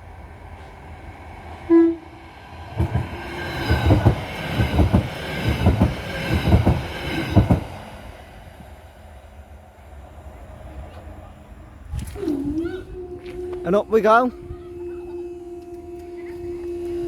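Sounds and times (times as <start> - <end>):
electric train running past: 0.0 - 12.2, 12.9 - 17.0
train horn toot: 1.7 - 2.2, 12.1 - 17.0.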